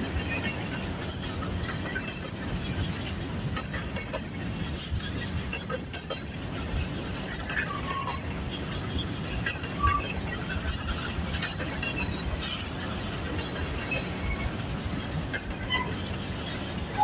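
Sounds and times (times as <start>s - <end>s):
freight train rumbling past: 0.0s - 17.0s
high wheel squeaks: 4.1s - 12.6s, 13.3s - 14.6s, 15.3s - 16.2s.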